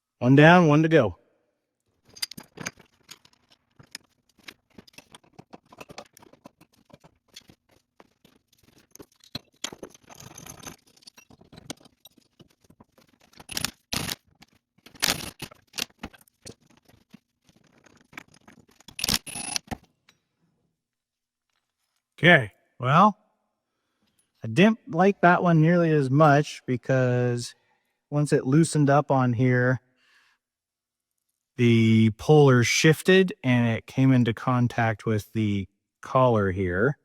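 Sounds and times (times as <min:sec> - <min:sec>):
metal tools clinking and scraping: 0:02.0 - 0:07.6, 0:08.7 - 0:12.3.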